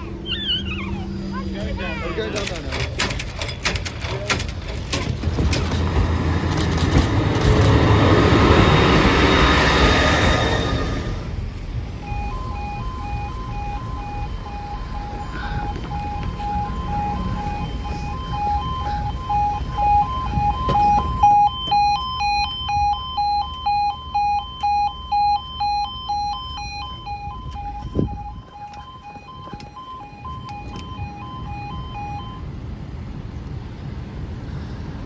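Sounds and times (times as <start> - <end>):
low rumble: 5.0 - 23.2
two-tone electronic warning alarm: 6.0 - 11.3, 11.9 - 32.6.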